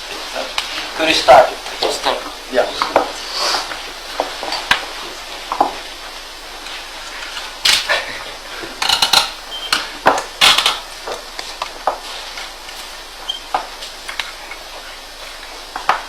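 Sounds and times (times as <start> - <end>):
machine clicks and clattering: 8.8 - 9.4, 10.2 - 10.8.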